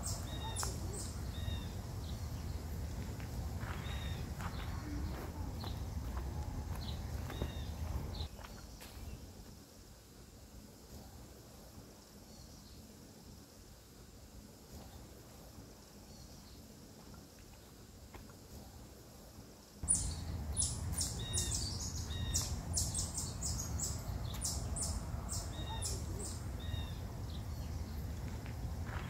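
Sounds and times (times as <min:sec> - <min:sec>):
steady low rumble: 0:00.0 - 0:08.3, 0:19.8 - 0:29.0
birds chirping: 0:00.0 - 0:09.3, 0:19.8 - 0:29.0.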